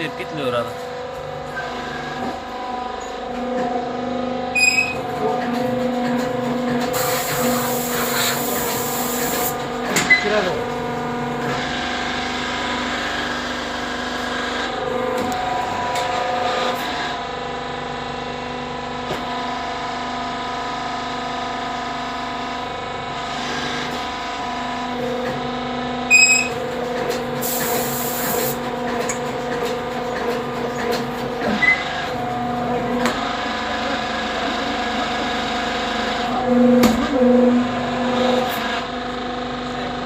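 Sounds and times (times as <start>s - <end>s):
press machine humming: 4.6s - 13.4s, 26.1s - 37.8s.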